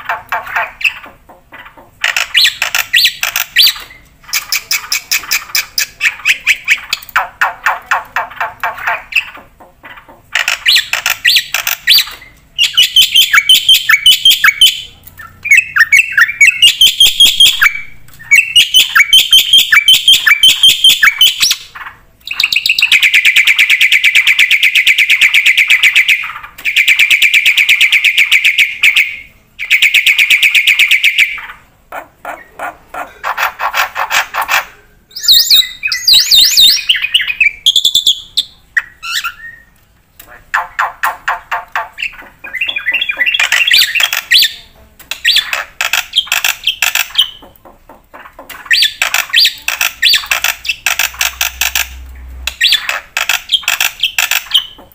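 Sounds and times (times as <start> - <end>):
myna singing chattering and trilling: 31.4 - 54.9.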